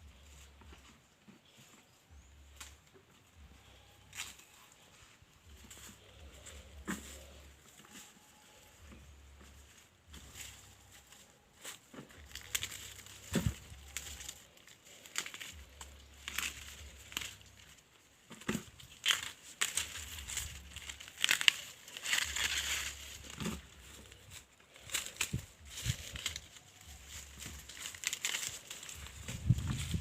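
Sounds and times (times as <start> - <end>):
dry maize leaves rustling: 0.0 - 30.0
stalks snapping: 18.4 - 23.6, 27.6 - 29.0.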